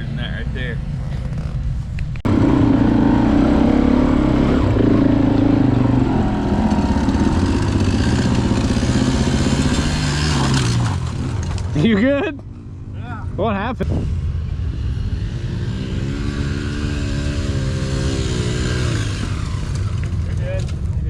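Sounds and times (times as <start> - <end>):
dirt bike engine running: 2.3 - 11.7.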